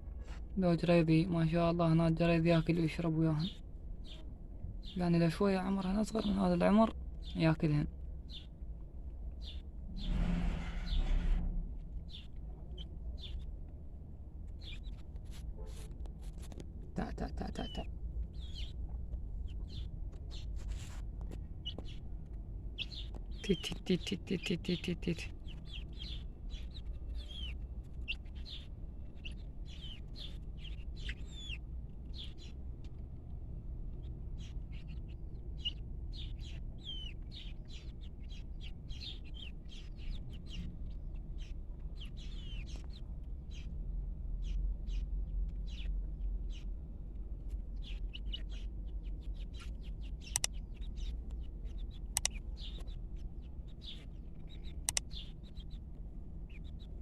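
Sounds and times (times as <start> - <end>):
birds chirping: 0.8 - 8.6, 9.2 - 11.4, 12.0 - 13.6, 14.5 - 15.1, 17.0 - 20.6, 21.4 - 32.8, 33.9 - 47.0, 47.6 - 57.0
sharp clicks: 50.2 - 50.6, 52.1 - 53.0, 54.8 - 55.2.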